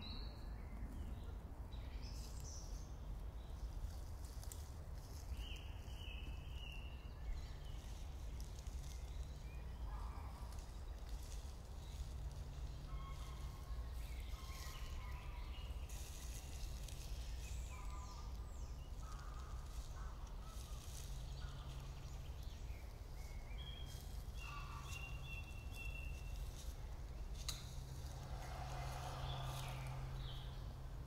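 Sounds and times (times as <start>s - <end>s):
low steady rumble: 7.0s - 31.0s
faint bird calls: 7.8s - 30.9s.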